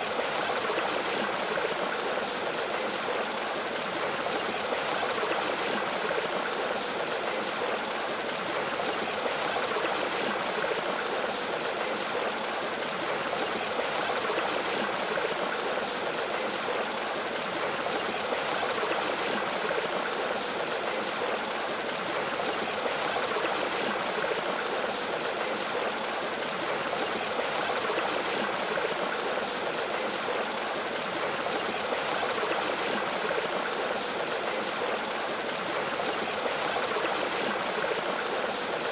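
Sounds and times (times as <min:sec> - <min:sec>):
stream flowing over rocks: 0:00.0 - 0:38.9.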